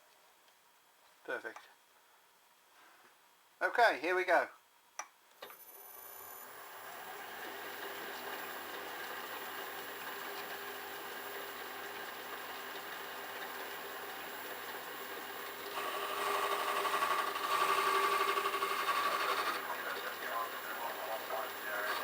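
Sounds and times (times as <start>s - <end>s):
metal lathe running: 15.6s - 22.0s
tool cutting steel with ringing tone: 15.7s - 19.6s.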